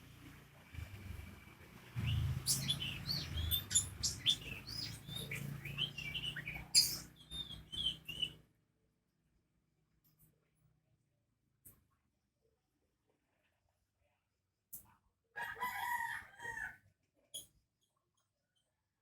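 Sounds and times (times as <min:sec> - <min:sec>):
lovebird chirping and squeaking: 0:02.0 - 0:08.4.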